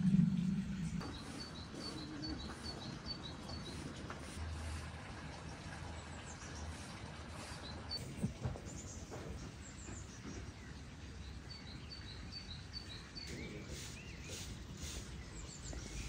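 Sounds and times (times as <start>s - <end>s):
low rushing noise: 0.0s - 1.0s
small bird chirping: 0.0s - 3.9s
outdoor background noise: 0.0s - 16.0s.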